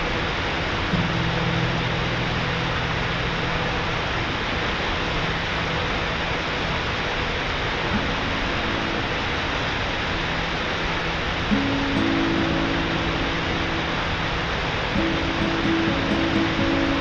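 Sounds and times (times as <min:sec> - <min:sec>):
waterfall roaring: 0:00.0 - 0:17.0
faint held musical notes: 0:07.9 - 0:17.0.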